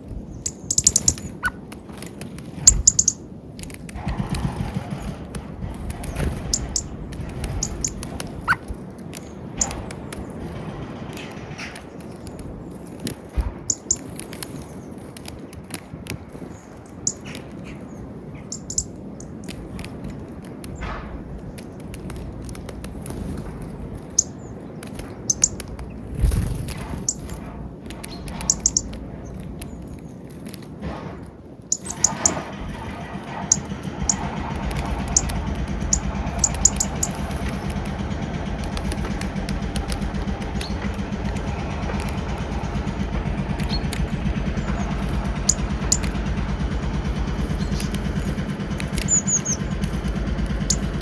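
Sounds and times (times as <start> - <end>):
small birds chirping: 0.0 - 30.7, 31.6 - 51.0
sharp taps: 30.8 - 51.0.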